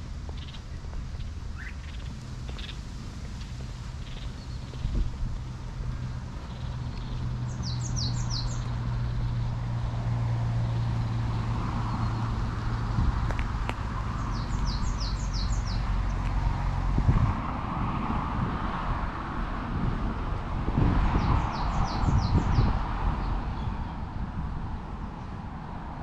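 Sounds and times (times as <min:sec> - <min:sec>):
steady low hum and rumble: 0:00.0 - 0:26.0
songbird calling: 0:00.3 - 0:02.8, 0:03.4 - 0:05.1, 0:06.4 - 0:09.5, 0:14.0 - 0:16.3.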